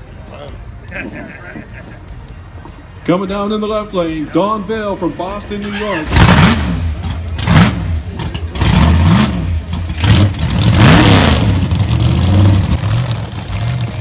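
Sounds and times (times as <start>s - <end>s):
race car engine revving: 6.0s - 14.0s.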